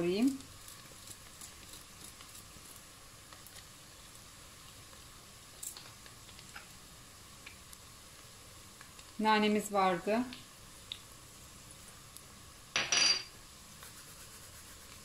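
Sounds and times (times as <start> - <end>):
small crackles: 0.0 - 9.2, 10.4 - 12.3
onion sizzling in a pot: 0.0 - 15.0.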